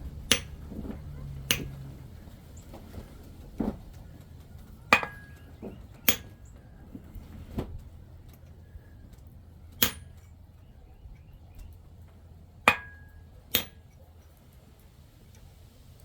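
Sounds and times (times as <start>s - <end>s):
hammer striking metal: 0.3s - 0.6s, 9.8s - 10.2s, 12.7s - 13.8s.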